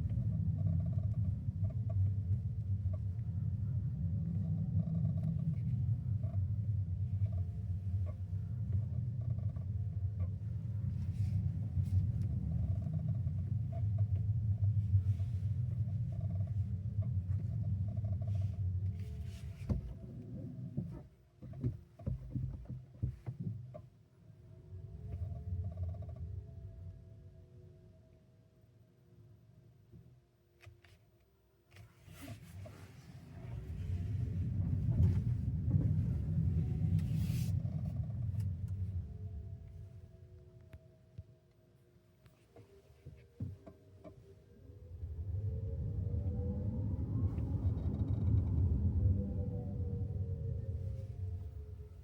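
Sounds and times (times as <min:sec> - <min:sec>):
road rumble in car cabin: 0:00.0 - 0:27.1, 0:31.7 - 0:41.1, 0:42.5 - 0:52.0
road and tyre rumble: 0:32.2 - 0:40.0.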